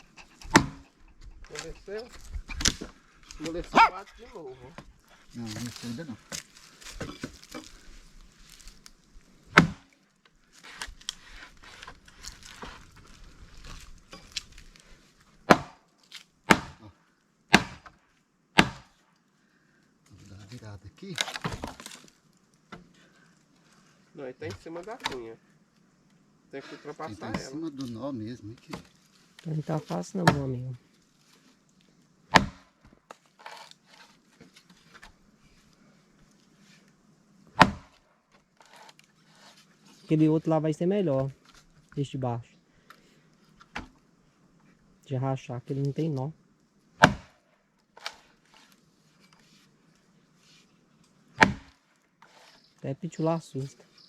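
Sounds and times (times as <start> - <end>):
axe striking a log: 0.5 - 0.8, 9.5 - 9.9, 15.4 - 15.8, 16.5 - 16.8, 17.5 - 18.0, 18.6 - 19.0, 32.3 - 32.7, 37.6 - 38.0, 47.0 - 47.4, 51.4 - 51.8.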